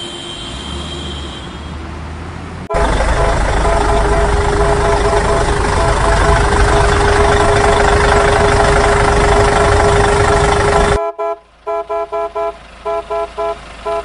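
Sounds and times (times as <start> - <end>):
short horn toots: 0.0 - 1.8, 2.7 - 14.0
cartoon engine rumble: 2.7 - 11.0.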